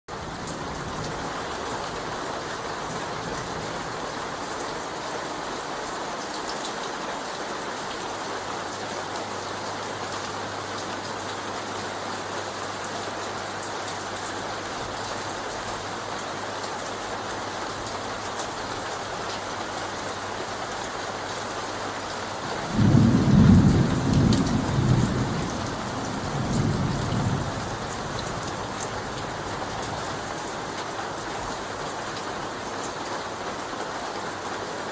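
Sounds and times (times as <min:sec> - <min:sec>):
rain tapping on leaves: 0:00.1 - 0:34.9
low rumble of thunder: 0:22.5 - 0:30.5.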